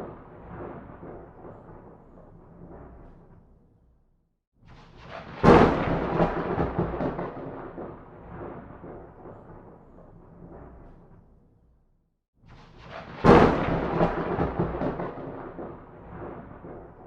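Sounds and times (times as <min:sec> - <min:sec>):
thunderclap crack and rumble: 0:00.0 - 0:04.0, 0:04.6 - 0:11.8, 0:12.4 - 0:17.0.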